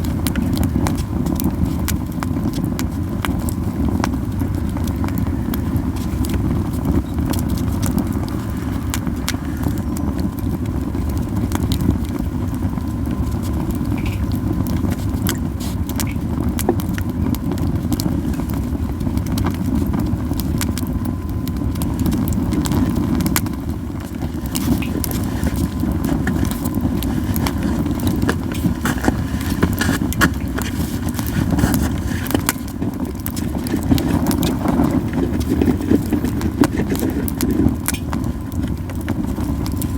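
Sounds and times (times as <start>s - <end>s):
campfire crackling and popping: 0.0s - 39.9s
low rushing fire sound: 0.0s - 39.9s.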